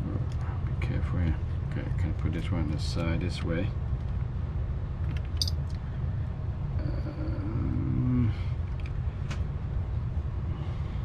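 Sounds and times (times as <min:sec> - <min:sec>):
low background rumble: 0:00.0 - 0:11.0
light clicks of small parts: 0:00.2 - 0:00.6, 0:05.0 - 0:05.8, 0:08.7 - 0:09.5.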